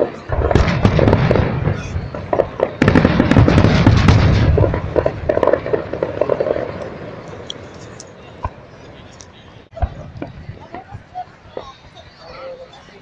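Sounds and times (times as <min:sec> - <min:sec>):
firework shells bursting: 0:00.3 - 0:08.1.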